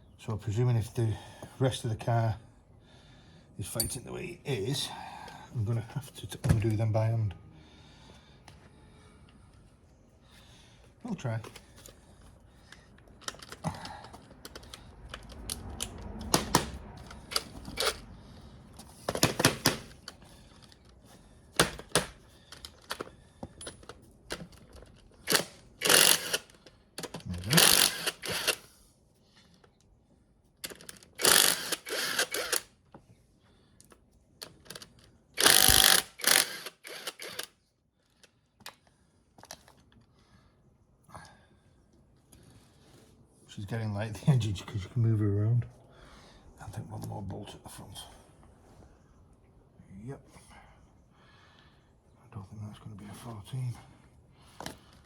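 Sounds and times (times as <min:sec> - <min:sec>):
ratchet clicking: 0:25.3 - 0:28.6, 0:30.7 - 0:32.7, 0:35.4 - 0:37.5.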